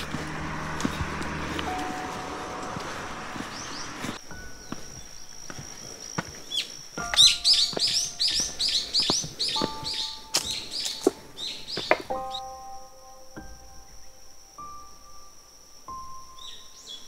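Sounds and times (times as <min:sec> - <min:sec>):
footsteps on stone path: 0:00.0 - 0:12.4
small bird chirping: 0:02.7 - 0:17.0.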